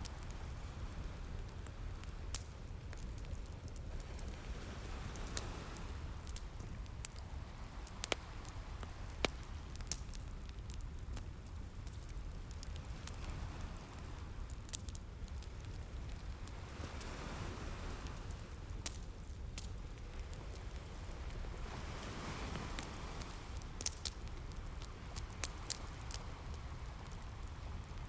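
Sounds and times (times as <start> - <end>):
wood fire crackling: 0.0 - 28.0
ocean surf rumbling: 4.1 - 9.7, 20.5 - 23.9.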